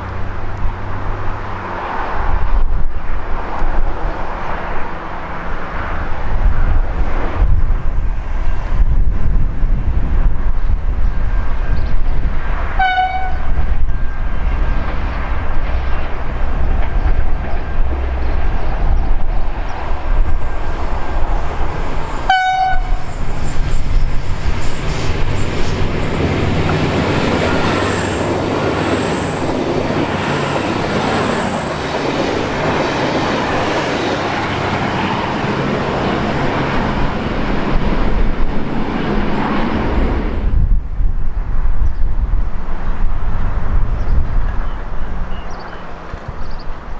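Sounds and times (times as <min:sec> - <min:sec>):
train wheel and rail rush: 0:00.0 - 0:46.9
train horn blasts: 0:12.7 - 0:14.8, 0:22.2 - 0:23.5.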